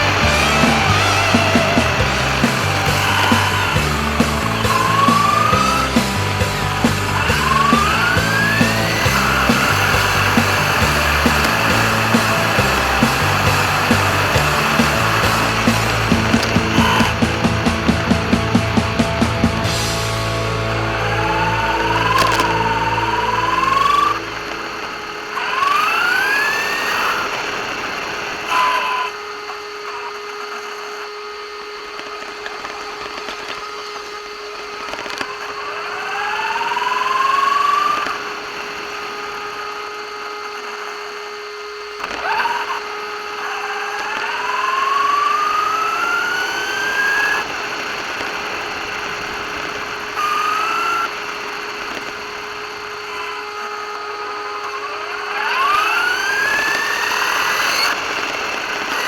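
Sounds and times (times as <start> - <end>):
rough rolling noise: 0.0 - 28.7
electric motor whining: 0.0 - 59.0.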